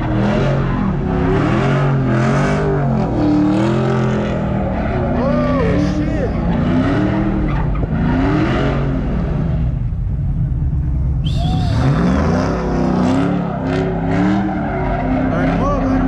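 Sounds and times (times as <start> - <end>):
car engine revving hard: 0.0 - 9.9, 11.3 - 16.0
high-pitched squeal: 11.2 - 16.0.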